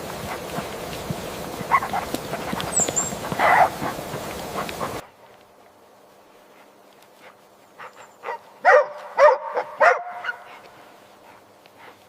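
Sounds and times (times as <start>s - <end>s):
dog barking: 1.7s - 2.1s, 3.3s - 4.0s, 7.8s - 10.6s.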